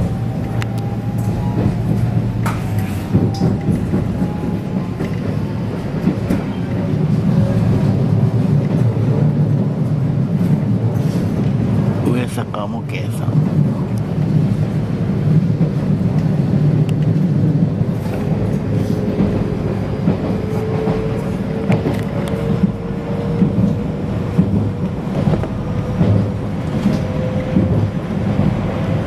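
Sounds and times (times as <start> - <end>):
faint train whine: 0.0 - 8.3
rumble of wheels on rail: 0.0 - 29.0.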